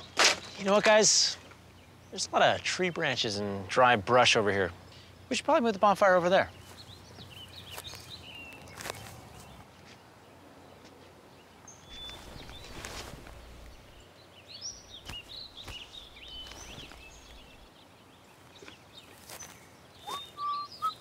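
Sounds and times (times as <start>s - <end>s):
birds chirping: 0.0s - 21.0s
rustle: 6.5s - 21.0s.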